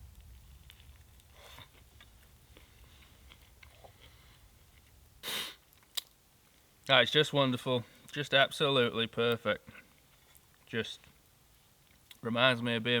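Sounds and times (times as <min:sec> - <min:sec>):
man chewing food: 0:00.0 - 0:06.2
breathy rush of noise: 0:01.2 - 0:05.6.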